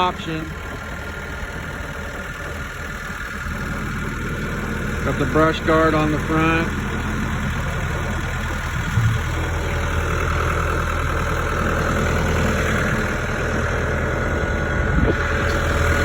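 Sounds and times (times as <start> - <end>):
tractor engine idling: 0.0 - 16.0
brief thump: 8.8 - 9.5.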